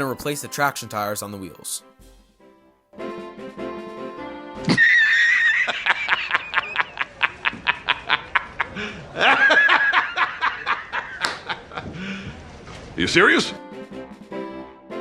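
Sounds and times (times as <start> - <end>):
cartoonish snickering laugh: 4.7 - 11.9.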